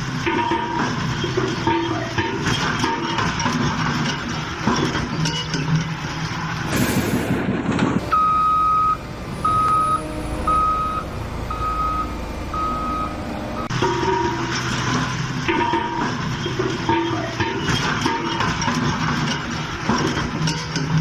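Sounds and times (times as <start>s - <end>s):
vehicle reversing alarm beeping: 8.0s - 14.7s.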